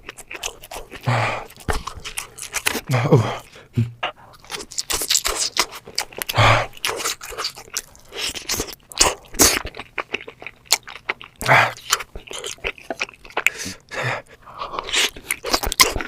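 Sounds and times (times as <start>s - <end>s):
person chewing and crunching food: 0.0s - 16.0s.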